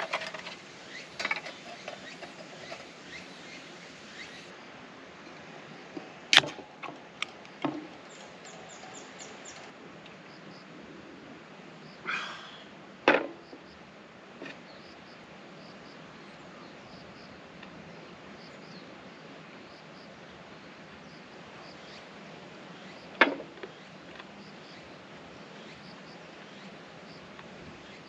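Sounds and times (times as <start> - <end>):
faint high chirps: 0.0 - 4.5
steady hiss: 0.0 - 5.6.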